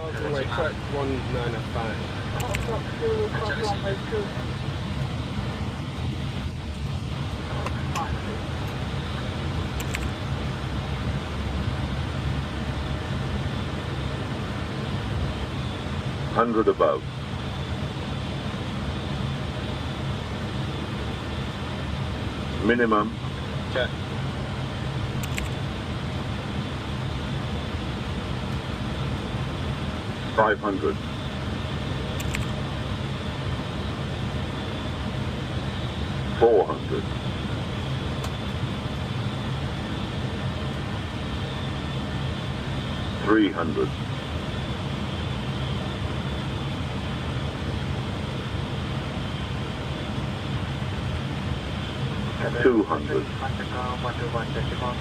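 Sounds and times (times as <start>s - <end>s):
airliner airflow and engine hum: 0.0s - 55.0s
faint short clicks: 25.2s - 25.6s.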